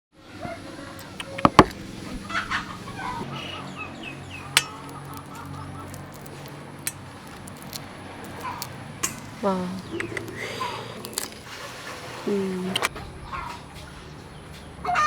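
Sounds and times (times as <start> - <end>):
birds chirping: 0.4 - 15.0
sharp knocks: 1.2 - 2.0.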